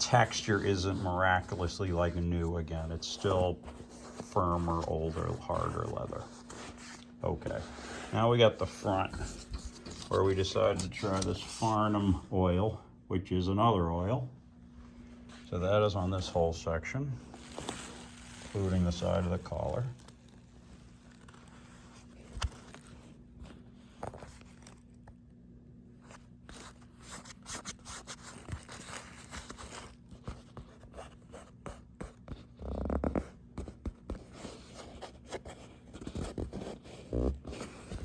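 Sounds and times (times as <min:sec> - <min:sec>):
leather scraping and crinkling: 0:00.0 - 0:12.0, 0:17.2 - 0:23.2.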